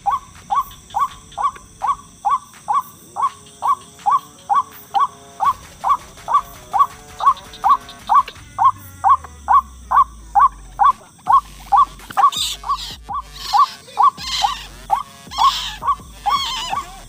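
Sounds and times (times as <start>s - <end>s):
waterhen calling: 0.0s - 17.0s.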